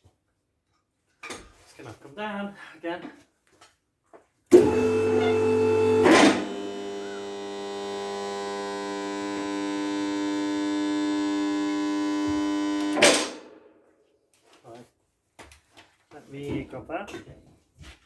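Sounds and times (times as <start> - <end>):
machine hum: 4.5 - 13.4.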